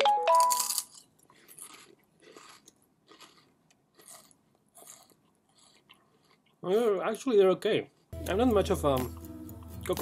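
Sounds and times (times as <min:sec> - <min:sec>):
potato chips crunching: 0:00.1 - 0:08.1.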